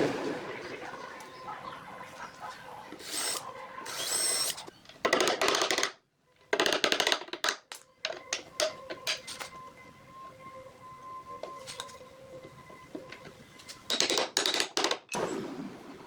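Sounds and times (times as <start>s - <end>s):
woodworking tools working wood: 2.1s - 5.9s.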